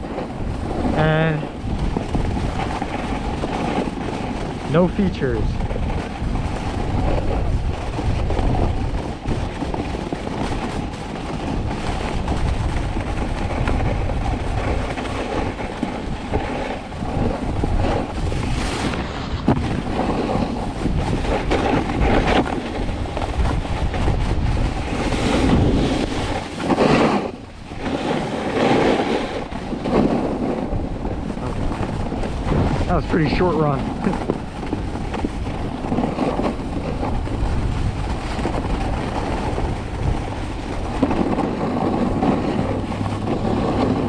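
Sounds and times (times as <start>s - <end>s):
snowboard scraping on snow: 0.0s - 44.0s
wind buffeting microphone: 0.0s - 44.0s.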